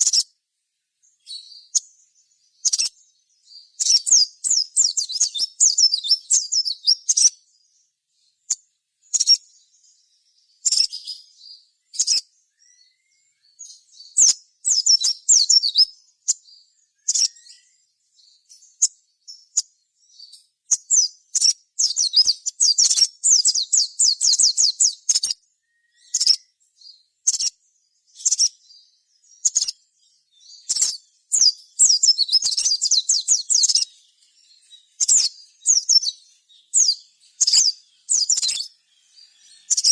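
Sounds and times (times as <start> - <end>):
sunbird chattering trills: 3.6 - 7.4, 14.0 - 16.4, 20.3 - 26.5, 29.2 - 39.9.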